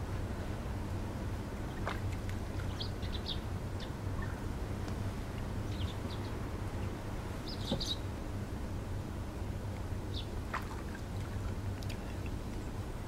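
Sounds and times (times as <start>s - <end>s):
steady low rumble: 0.0s - 13.0s
birds chirping: 2.6s - 4.5s, 5.6s - 8.1s, 10.1s - 10.4s.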